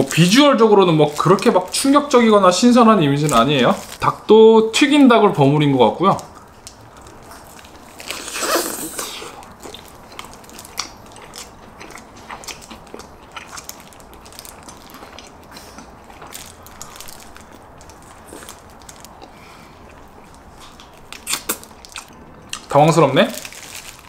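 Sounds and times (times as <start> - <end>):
chewing with small crunches: 6.2 - 22.8
crunchy bite into fried chicken: 21.2 - 22.1.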